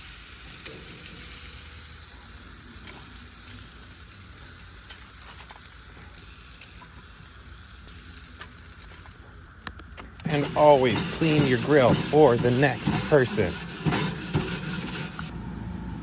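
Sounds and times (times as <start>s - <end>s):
chicken sizzling on a grill: 0.0s - 9.5s, 10.2s - 13.5s.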